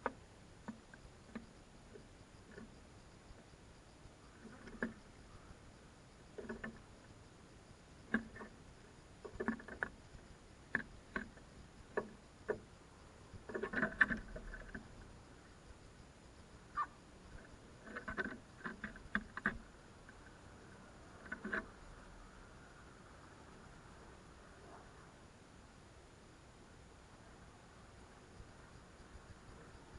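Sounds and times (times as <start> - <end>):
crows pecking on hard surface: 0.0 - 3.5, 4.3 - 5.6, 6.3 - 7.1, 8.0 - 15.2, 16.8 - 21.8.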